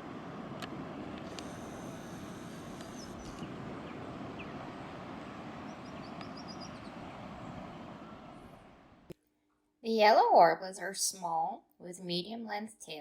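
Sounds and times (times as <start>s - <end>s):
steady outdoor rushing noise: 0.0s - 9.1s
songbirds chirping: 0.9s - 9.1s.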